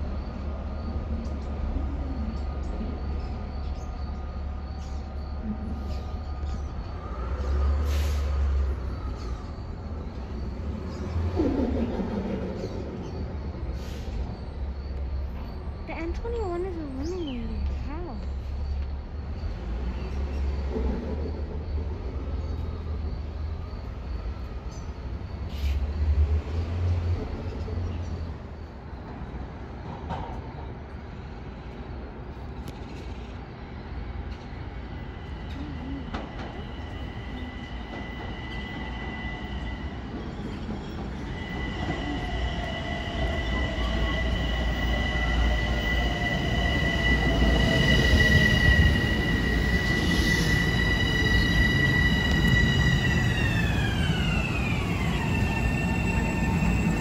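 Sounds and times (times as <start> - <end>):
electric train rumble: 0.0 - 57.0
high wheel squeal: 36.0 - 57.0.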